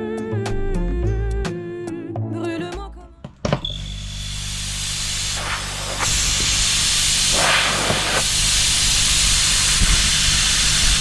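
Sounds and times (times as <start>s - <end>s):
torch flame hissing: 4.1s - 11.0s.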